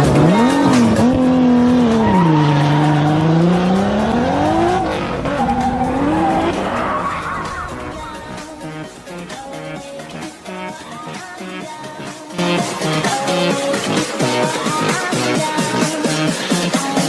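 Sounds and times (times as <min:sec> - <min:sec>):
car engine revving: 0:00.0 - 0:10.9
music: 0:00.0 - 0:17.0
tyres squealing: 0:00.4 - 0:08.2.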